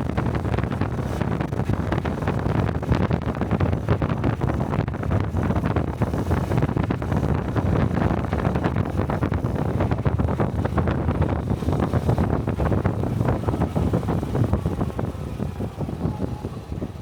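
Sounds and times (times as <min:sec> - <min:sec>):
wind buffeting microphone: 0:00.0 - 0:17.0
motorcycle engine running: 0:05.3 - 0:17.0.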